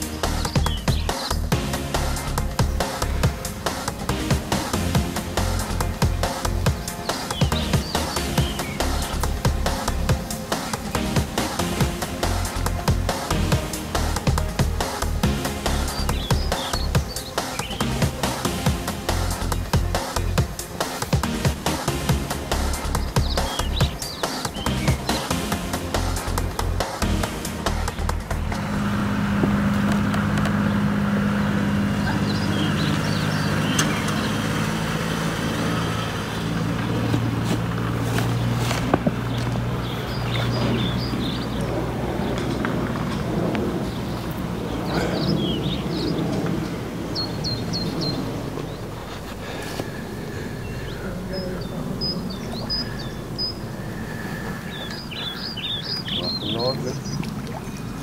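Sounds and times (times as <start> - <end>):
songbird chirping and whistling: 0.0 - 28.5, 31.9 - 34.7, 38.1 - 58.0
motor hum: 0.0 - 45.0
low outdoor rumble: 0.0 - 58.0
faint high chirps: 49.9 - 58.0.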